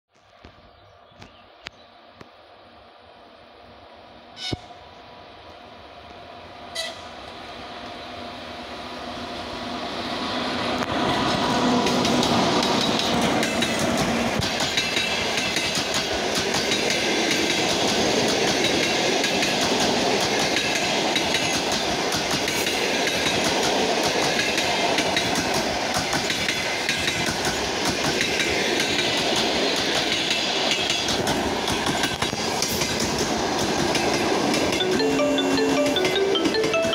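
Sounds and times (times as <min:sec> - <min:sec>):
electric locomotive passing: 0:01.9 - 0:36.9
wheels clacking over rail joints: 0:10.8 - 0:34.9.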